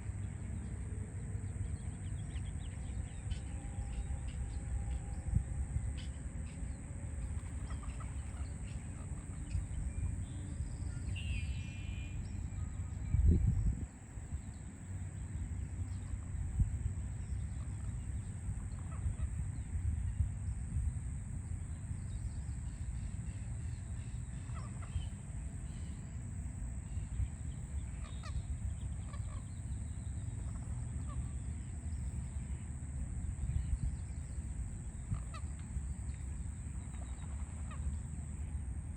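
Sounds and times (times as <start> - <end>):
city traffic rumble: 0.0 - 38.9
birds calling: 22.3 - 26.2, 26.8 - 38.1.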